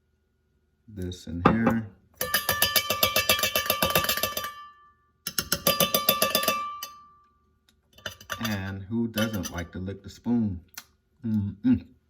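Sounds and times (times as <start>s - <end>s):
metal spoon clinking in cup: 1.5s - 7.1s, 8.0s - 9.7s.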